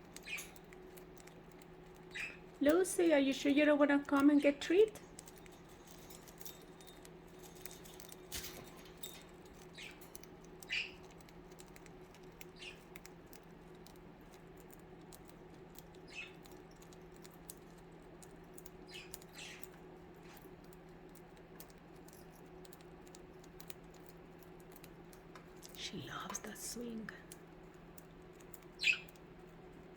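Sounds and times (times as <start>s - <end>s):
birds pecking and scratching: 0.0s - 29.9s
soft bird chirps: 0.1s - 1.3s, 1.9s - 2.6s, 9.6s - 11.2s, 12.4s - 12.9s, 15.9s - 16.9s, 18.7s - 19.8s, 28.6s - 29.3s.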